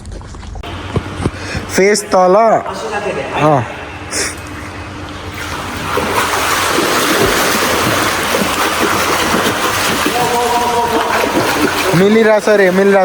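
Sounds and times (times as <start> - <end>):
water splashing in pool: 0.6 - 13.0.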